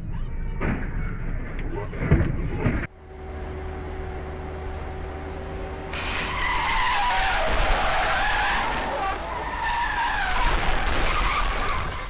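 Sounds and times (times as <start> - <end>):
car hum: 0.0 - 12.0
car tyres squealing: 5.9 - 12.0.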